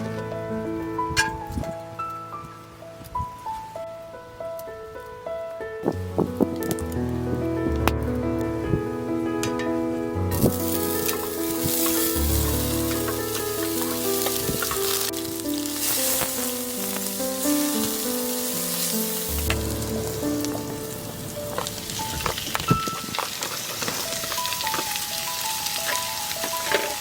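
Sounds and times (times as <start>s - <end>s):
slow background music: 5.5s - 23.2s
food sizzling in a pan: 10.3s - 27.0s.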